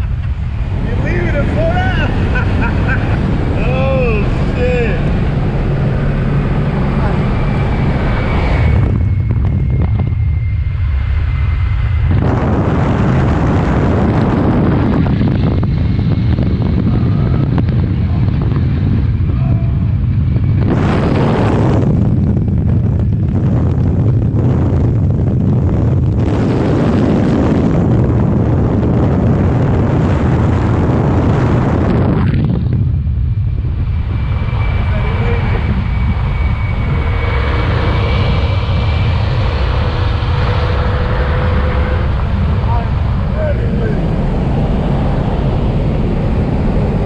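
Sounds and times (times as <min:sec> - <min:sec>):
road noise: 0:00.0 - 0:13.8, 0:32.0 - 0:47.0
car engine rumble: 0:00.0 - 0:47.0
wind buffeting microphone: 0:00.0 - 0:47.0.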